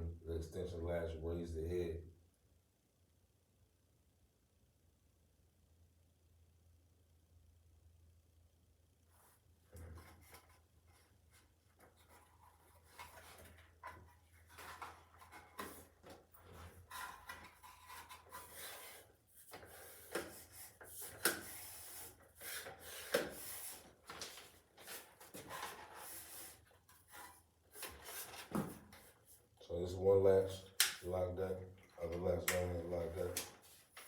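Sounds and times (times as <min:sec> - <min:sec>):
rubbing and scraping of parts: 0:09.8 - 0:29.5.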